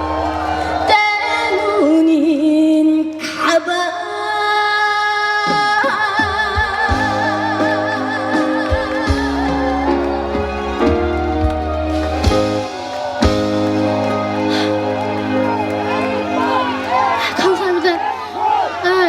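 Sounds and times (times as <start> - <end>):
woman singing with vibrato: 0.9 - 10.3.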